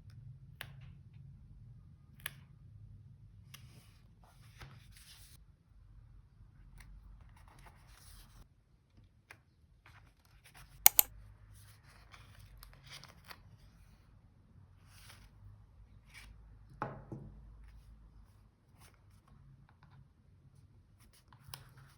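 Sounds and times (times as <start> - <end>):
sharp double snap: 10.9 - 11.1.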